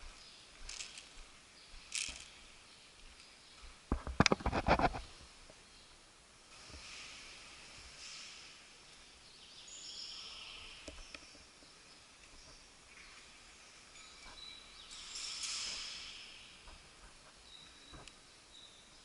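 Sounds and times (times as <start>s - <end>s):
birds chirping: 0.0s - 4.4s, 8.6s - 19.0s.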